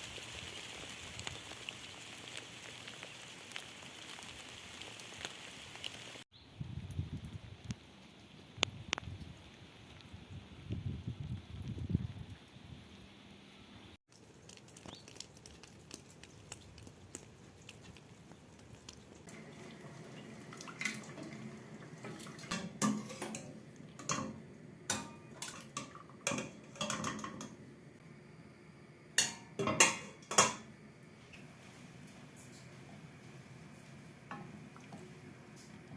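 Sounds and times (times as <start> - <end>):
running water: 14.1 - 27.5
dishes and utensils clinking: 22.0 - 27.6, 29.2 - 30.7.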